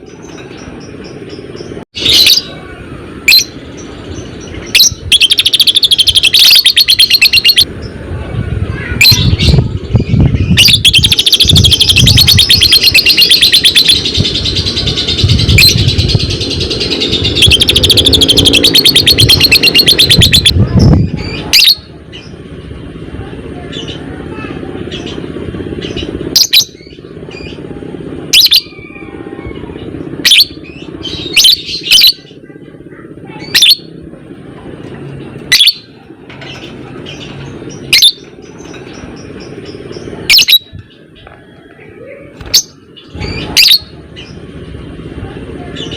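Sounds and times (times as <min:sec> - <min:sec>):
sharp bird chirps: 0:03.3 - 0:07.7, 0:09.0 - 0:22.3, 0:37.8 - 0:40.8
lovebird chattering trills: 0:04.4 - 0:07.7, 0:09.0 - 0:22.3, 0:28.3 - 0:29.0, 0:29.6 - 0:32.4, 0:33.3 - 0:34.0, 0:36.5 - 0:40.9, 0:42.4 - 0:44.4
low rumble: 0:13.9 - 0:19.6.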